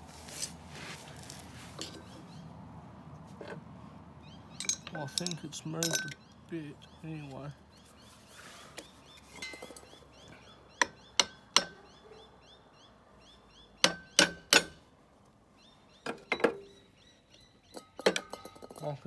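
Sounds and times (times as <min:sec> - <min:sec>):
bird chirping: 0:01.8 - 0:02.6, 0:04.2 - 0:14.3, 0:15.6 - 0:18.0.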